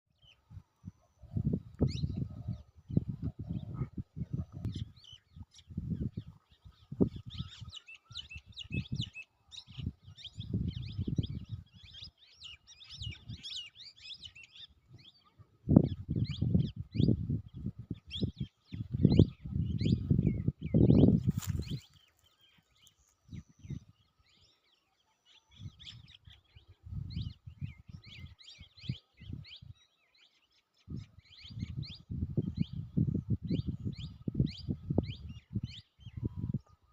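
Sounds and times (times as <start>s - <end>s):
small birds chirping: 0.1s - 36.9s.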